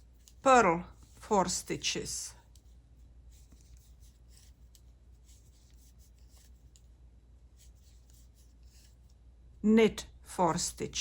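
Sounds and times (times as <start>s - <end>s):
knitting needles scraping and clicking: 0.0s - 1.2s, 2.4s - 6.9s, 7.6s - 9.2s
low steady hum: 0.0s - 11.0s.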